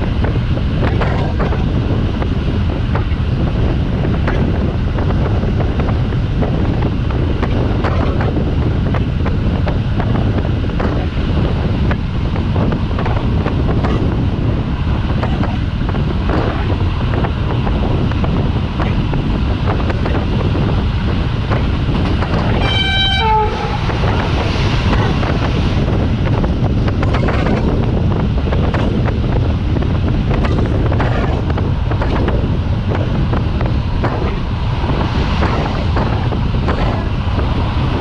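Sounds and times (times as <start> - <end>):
rushing air: 0.0 - 38.0
train wheel rumble: 0.0 - 38.0
train horn: 22.6 - 23.8.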